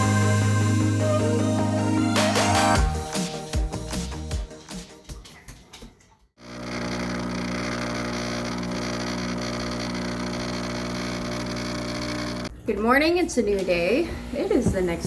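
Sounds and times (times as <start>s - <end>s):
background music: 0.0s - 5.1s
coffee maker humming: 6.4s - 12.5s.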